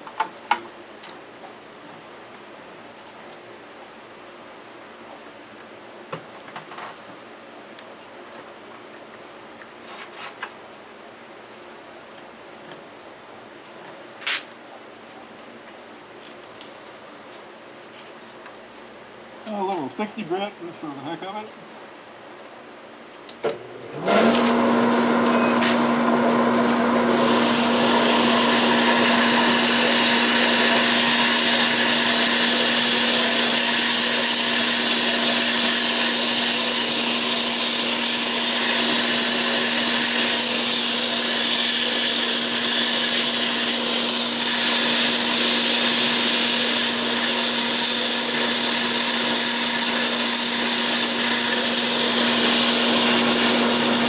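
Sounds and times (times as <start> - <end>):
wood lathe motor hum: 24.0 - 54.0
sandpaper hissing on spinning wood: 27.1 - 54.0.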